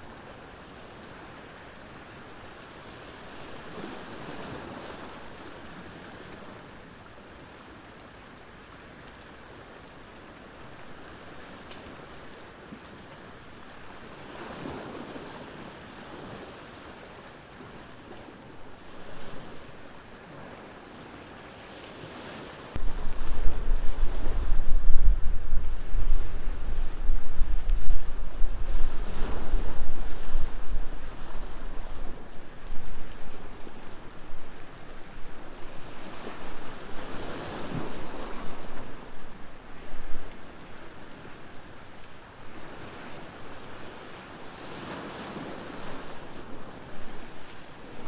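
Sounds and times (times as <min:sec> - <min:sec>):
ocean waves on shore: 0:00.0 - 0:48.0
faint campfire crackles: 0:07.0 - 0:48.0
wind buffeting microphone: 0:22.8 - 0:40.9.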